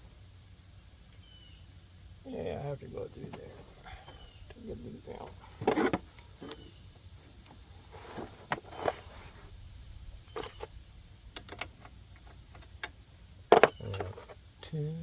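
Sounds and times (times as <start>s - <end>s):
hand tools clinking and knocking: 13.5s - 14.4s.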